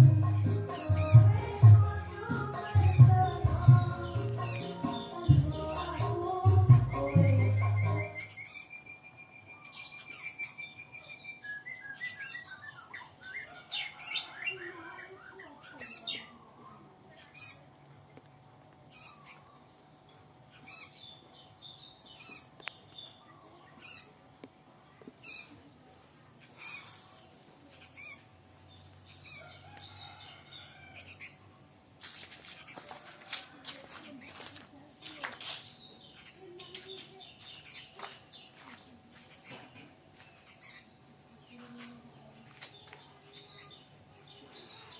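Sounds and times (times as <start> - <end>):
bird chick chirping: 7.0 - 17.8, 26.4 - 31.6, 32.4 - 34.6.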